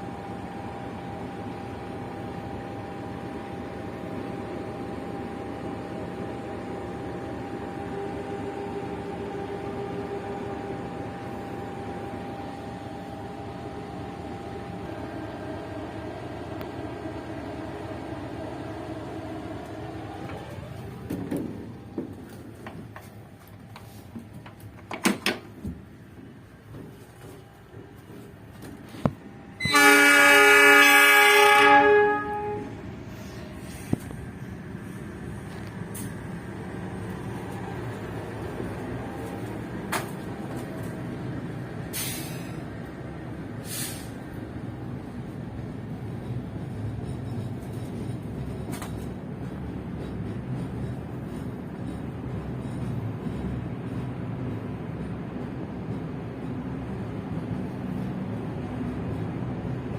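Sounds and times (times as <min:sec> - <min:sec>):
train running hum: 0:00.0 - 0:59.9
short hisses: 0:41.9 - 0:42.6, 0:43.6 - 0:44.2.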